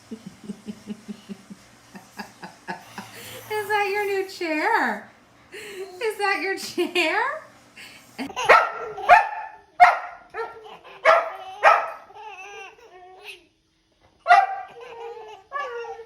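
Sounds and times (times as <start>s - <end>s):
dog barking: 8.4s - 12.1s, 14.3s - 14.8s.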